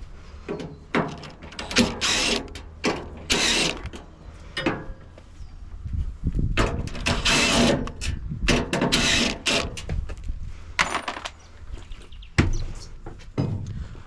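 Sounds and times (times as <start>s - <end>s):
metal panels scraping and rattling: 0.4s - 5.1s, 6.6s - 10.0s.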